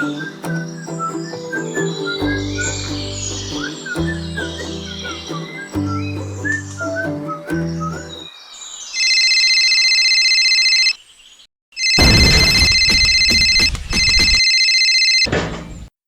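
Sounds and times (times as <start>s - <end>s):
electronic ringing tone: 9.0s - 11.0s, 11.8s - 15.3s.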